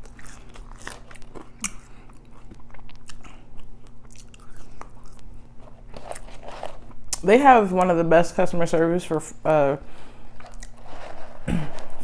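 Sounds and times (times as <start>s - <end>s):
wet chewing and mouth smacks: 0.0s - 7.2s, 10.4s - 10.8s
faint electrical hum: 0.0s - 12.0s.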